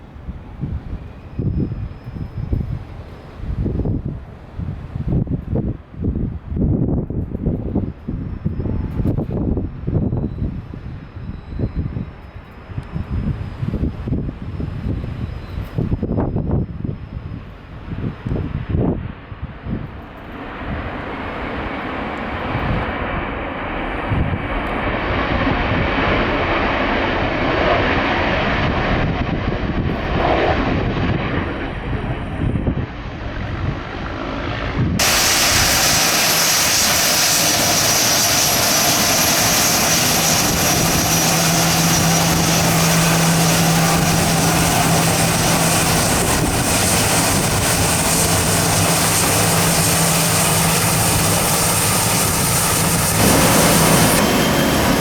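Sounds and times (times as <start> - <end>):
jet engines: 0.0 - 55.0
wind buffeting microphone: 0.0 - 55.0
low hum: 35.0 - 55.0.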